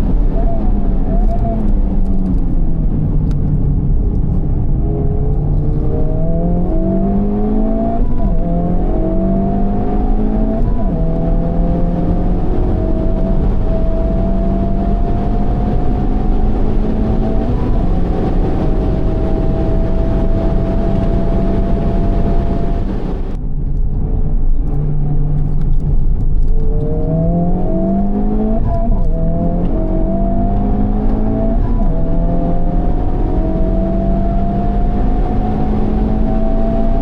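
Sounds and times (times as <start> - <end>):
car engine revving: 0.0 - 23.4, 24.7 - 37.0
gear change: 0.0 - 23.9.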